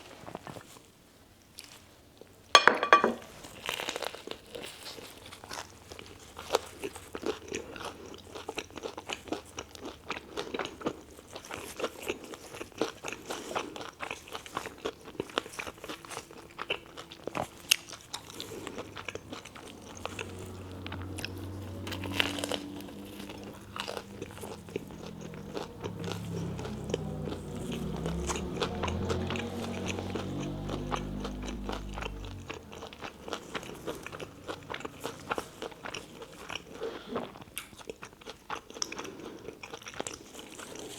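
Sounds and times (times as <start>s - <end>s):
low hum: 18.1s - 36.8s.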